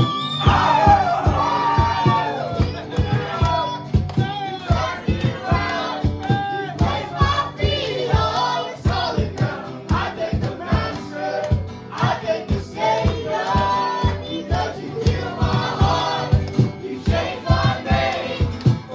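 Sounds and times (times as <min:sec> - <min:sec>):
group of voices singing: 0:00.0 - 0:18.9
steady drum beat: 0:00.0 - 0:18.9
worship band playing: 0:00.0 - 0:18.9.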